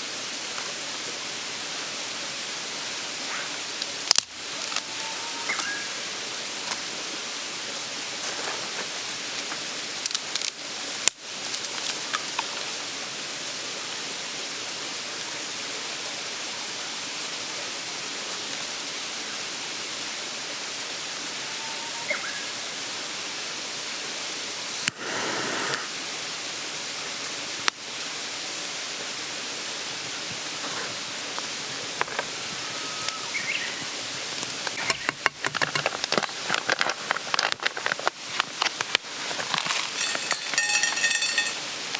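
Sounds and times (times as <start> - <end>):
mountain stream babbling: 0.0 - 41.9.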